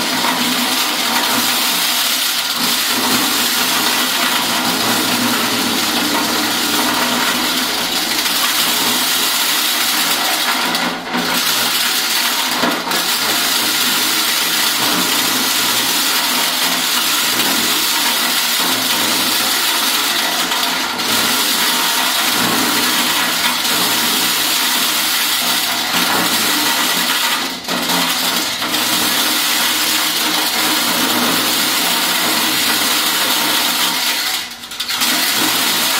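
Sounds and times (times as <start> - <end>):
corn sheller rushing and rattling: 0.0 - 35.9.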